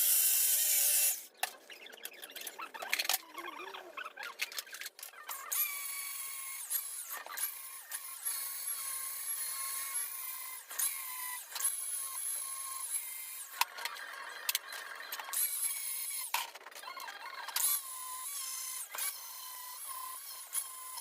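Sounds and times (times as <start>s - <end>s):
power tool whining: 5.3s - 21.0s.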